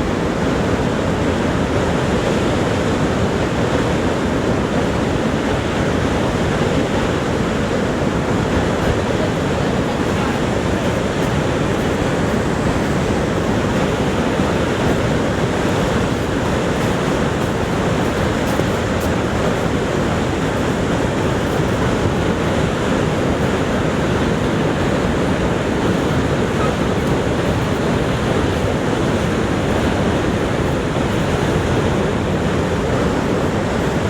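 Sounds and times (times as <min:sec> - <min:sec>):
waterfall roaring: 0:00.0 - 0:34.0.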